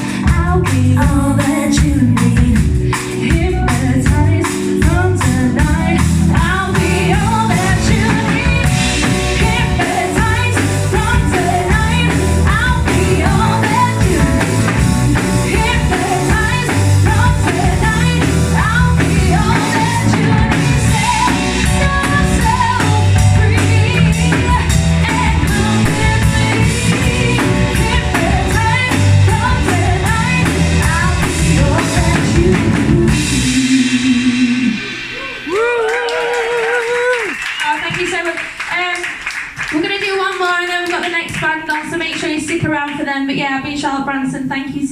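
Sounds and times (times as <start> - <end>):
live band playing: 0.0 - 43.7
lead singer singing: 0.3 - 35.9.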